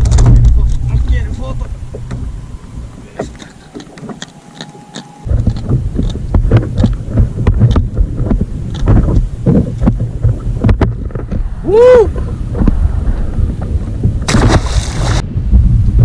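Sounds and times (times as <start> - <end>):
wind buffeting microphone: 0.0 - 16.0
water slapping against kayak hull: 5.3 - 11.5, 14.0 - 15.2.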